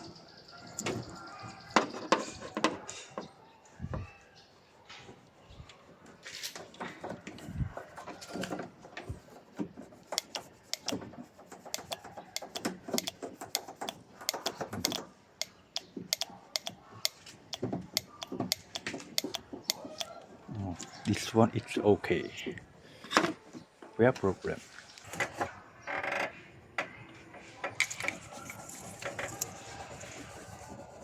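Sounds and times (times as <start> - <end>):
metal tools clicking and tapping: 10.1 - 11.0, 11.6 - 20.2, 27.8 - 30.1.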